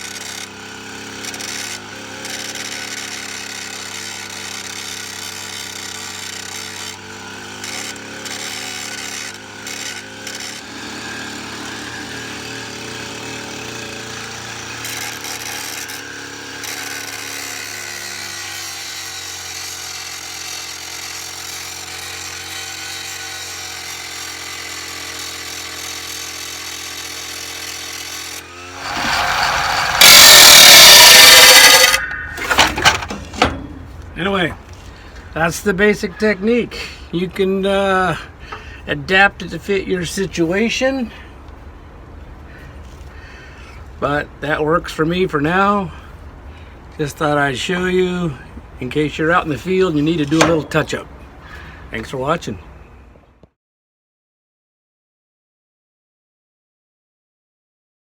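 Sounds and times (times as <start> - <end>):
blade grinding against steel: 0.0 - 34.0, 49.8 - 51.0
string trimmer engine running: 0.0 - 34.8.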